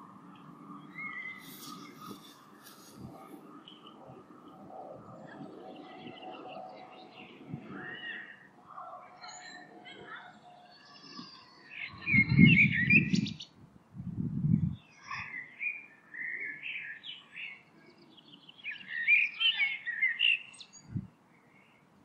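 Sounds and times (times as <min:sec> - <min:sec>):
songbird twittering: 0:11.2 - 0:13.5.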